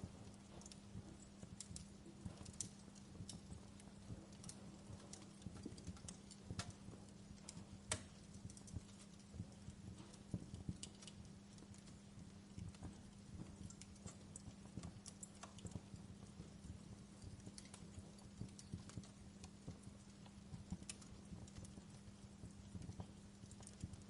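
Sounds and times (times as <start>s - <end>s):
faint steady hum: 0.0s - 24.0s
wood fire crackling and popping: 0.0s - 24.0s.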